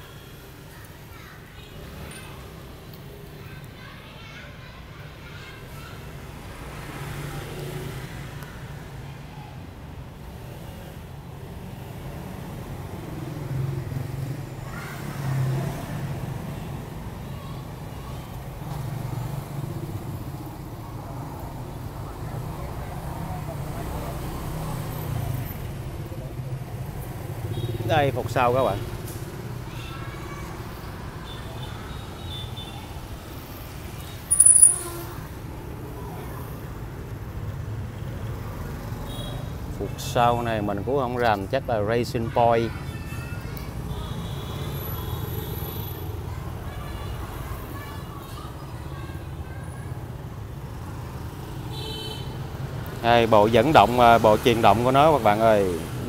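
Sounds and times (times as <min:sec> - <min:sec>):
low rumble of street traffic: 0:00.0 - 0:56.0.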